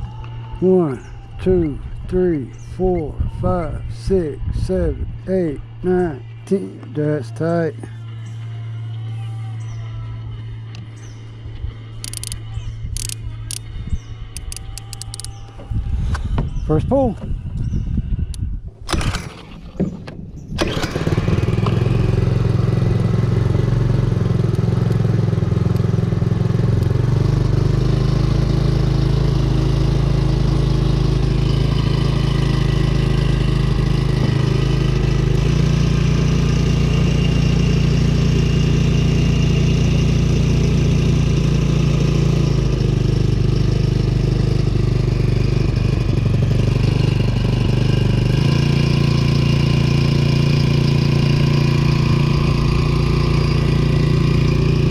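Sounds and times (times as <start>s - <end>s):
outboard motor running: 18.9s - 54.9s.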